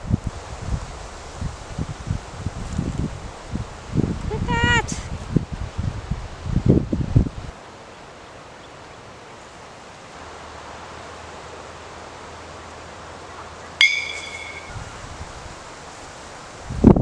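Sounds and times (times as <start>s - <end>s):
outdoor background hiss: 0.0s - 17.0s
sharp metallic clink: 13.8s - 14.8s.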